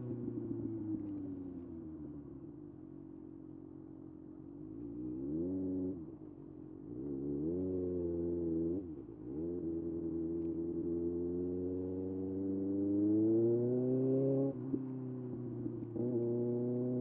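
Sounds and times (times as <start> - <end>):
motorcycle engine revving: 6.9 - 17.0.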